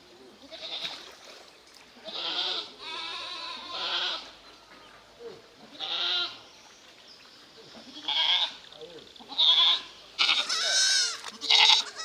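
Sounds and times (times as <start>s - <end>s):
goat bleating: 2.0s - 4.4s, 5.7s - 6.4s, 7.9s - 8.6s, 9.2s - 12.0s.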